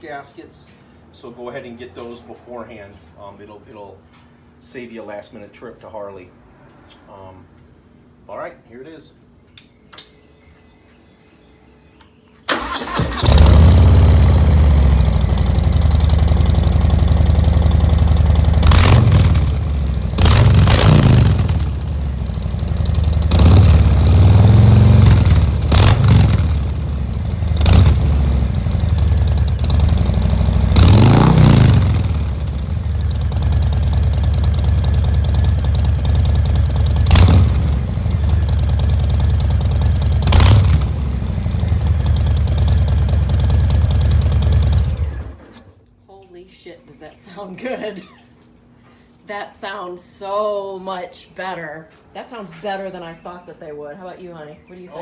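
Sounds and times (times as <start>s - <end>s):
motorcycle engine idling and revving: 13.2s - 45.5s.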